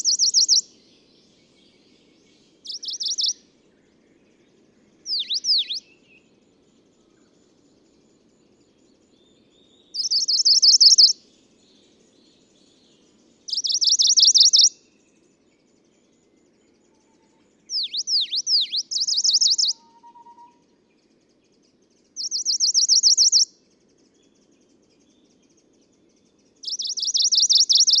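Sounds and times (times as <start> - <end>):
warbler singing high trills: 0.0 - 28.0.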